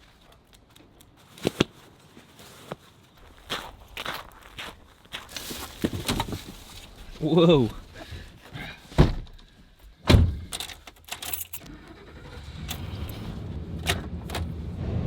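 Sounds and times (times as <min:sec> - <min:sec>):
keys jangling: 0:10.6 - 0:11.7.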